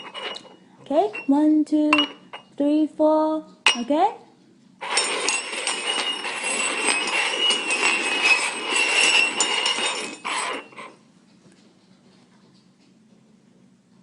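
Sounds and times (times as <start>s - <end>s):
cups scraping across tabletop: 0.0s - 1.4s, 4.8s - 11.0s.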